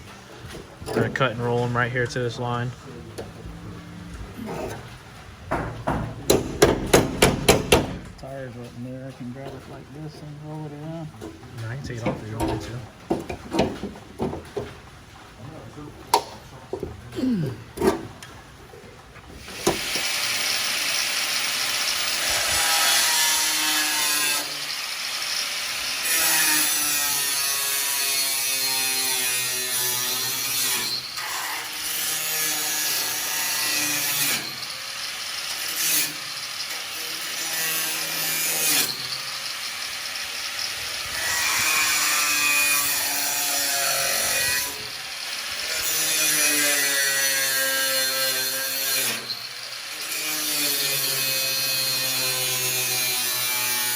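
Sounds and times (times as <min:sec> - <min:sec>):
angle grinder cutting sheet metal: 0:04.3 - 0:09.1, 0:19.4 - 0:53.9.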